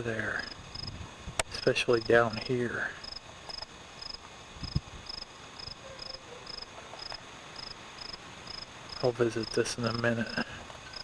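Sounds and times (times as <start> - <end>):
cricket chirping: 0.4 - 1.0, 1.6 - 2.4, 3.0 - 11.0.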